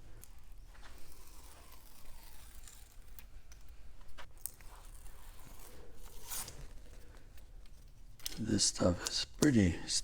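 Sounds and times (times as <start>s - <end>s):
backing paper peeling crackle: 1.0s - 3.2s.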